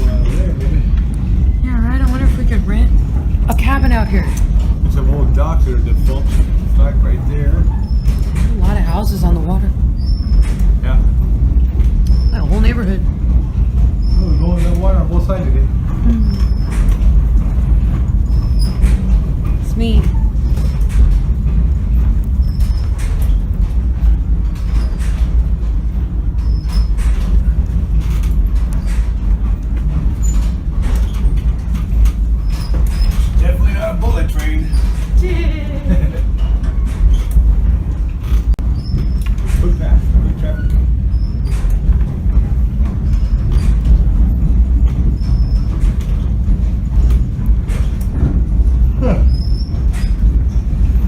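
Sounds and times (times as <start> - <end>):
train knocks: 0.0 - 51.0
train rumbling on rails: 0.0 - 51.0
high squeaks: 5.9 - 11.0, 12.0 - 12.9, 13.9 - 15.0, 16.0 - 17.2, 18.1 - 19.2, 22.4 - 23.5, 26.3 - 27.3, 38.6 - 41.8, 49.0 - 51.0.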